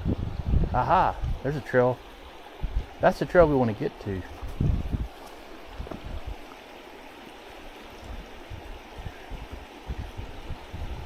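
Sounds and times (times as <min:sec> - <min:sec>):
river rushing over rocks: 0:01.6 - 0:11.0
soft low thuds: 0:04.4 - 0:06.4.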